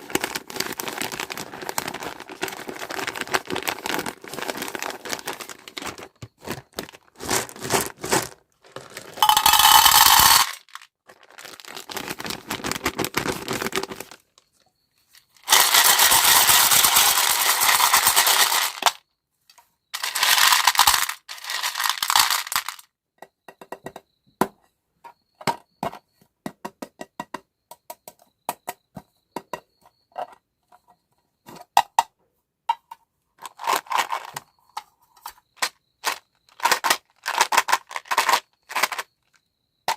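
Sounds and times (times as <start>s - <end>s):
packaging crinkling and tearing: 0.0s - 9.2s, 10.7s - 14.2s.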